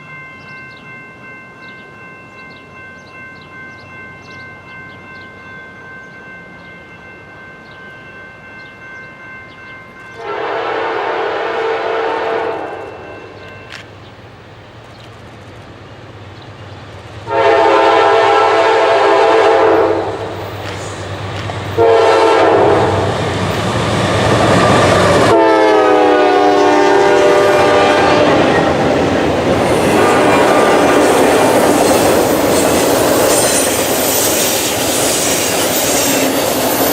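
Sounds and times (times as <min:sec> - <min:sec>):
train rumble: 0:00.0 - 0:36.9
locomotive air horn blasts: 0:10.2 - 0:13.4, 0:17.3 - 0:20.3, 0:21.8 - 0:23.1, 0:25.2 - 0:28.7.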